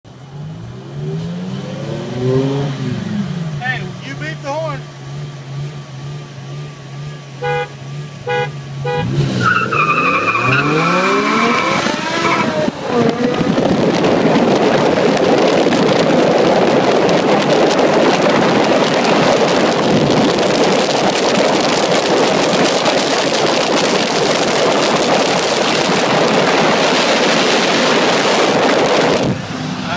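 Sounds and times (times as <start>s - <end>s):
car engine accelerating: 0.1s - 29.9s
car horn toots: 7.4s - 9.2s
wind noise at high speed: 10.6s - 29.7s.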